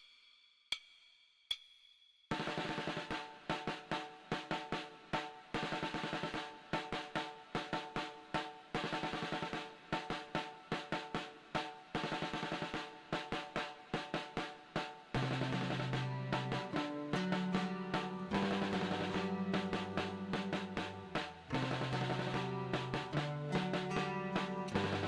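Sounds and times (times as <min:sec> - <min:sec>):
snare drum rolls: 0:02.3 - 0:25.0
bass drum: 0:15.2 - 0:25.0.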